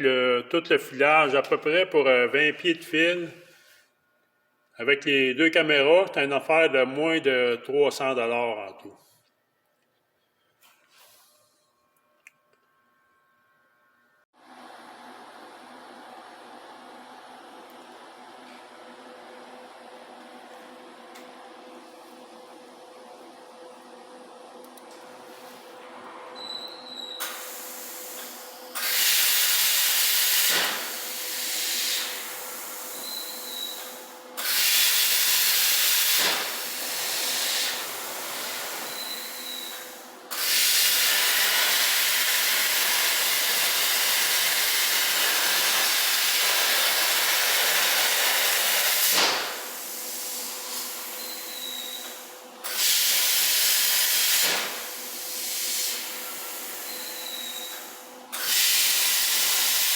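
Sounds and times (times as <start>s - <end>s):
plasma arc hissing: 27.2s - 59.9s.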